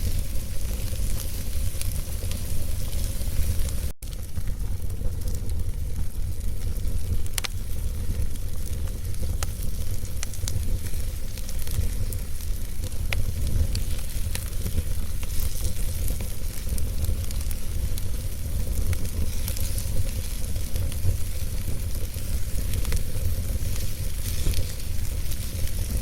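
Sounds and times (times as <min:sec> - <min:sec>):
logs crackling and popping: 0:00.0 - 0:26.0
wood fire rumbling and hissing: 0:00.0 - 0:26.0.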